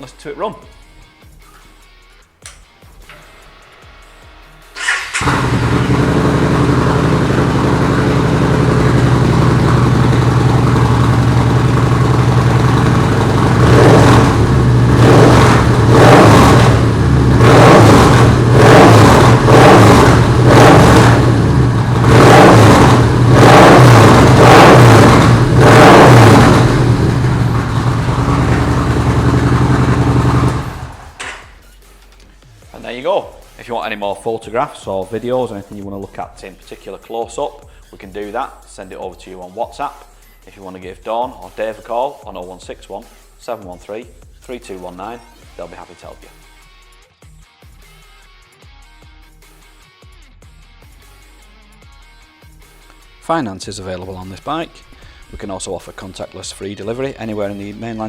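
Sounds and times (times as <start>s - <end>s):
motorcycle engine revving and idling: 4.0s - 31.7s.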